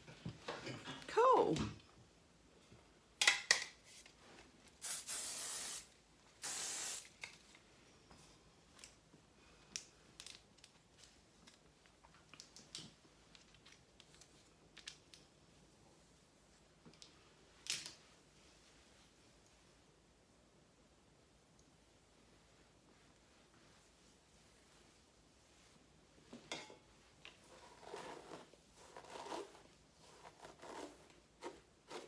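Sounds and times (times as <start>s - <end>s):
aerosol can spraying: 4.8s - 7.1s.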